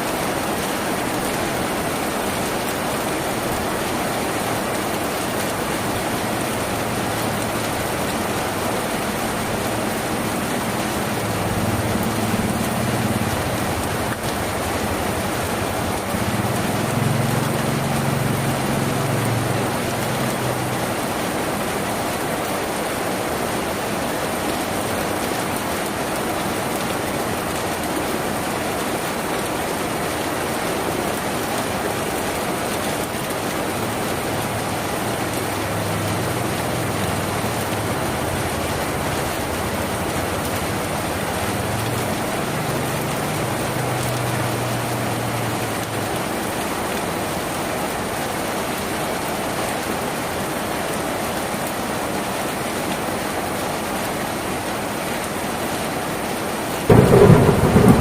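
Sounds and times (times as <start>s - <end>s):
heavy rain on a tin roof: 0.0s - 58.0s
low rumble: 56.9s - 58.0s.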